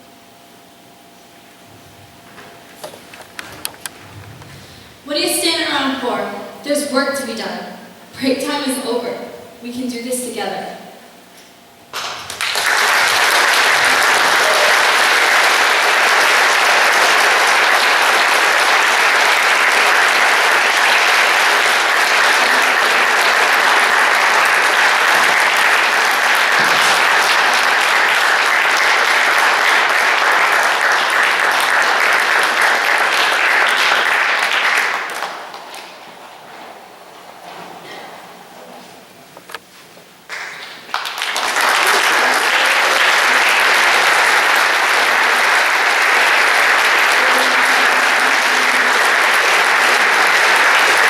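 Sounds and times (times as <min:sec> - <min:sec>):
audience applauding: 0:11.9 - 0:37.6, 0:40.3 - 0:51.0.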